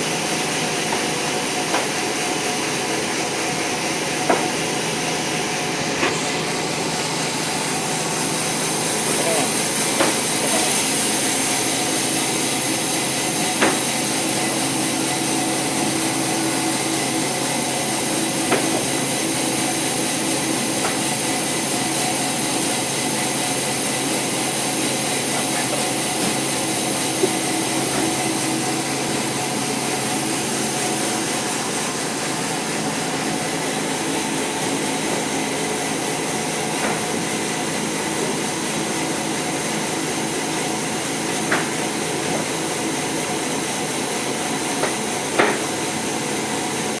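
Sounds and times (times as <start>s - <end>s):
sharp knocks: 1.7s - 2.0s, 4.2s - 4.6s, 10.0s - 10.2s, 13.6s - 13.9s, 44.8s - 45.8s.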